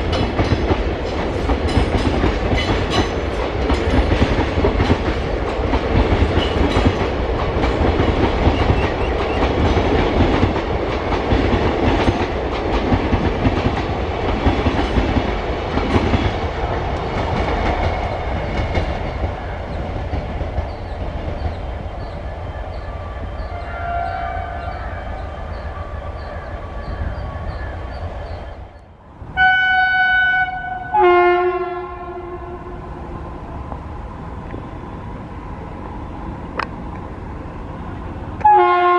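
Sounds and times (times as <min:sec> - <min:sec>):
train wheels clattering over rail joints: 0:00.0 - 0:22.2
train rumble: 0:00.0 - 0:38.9.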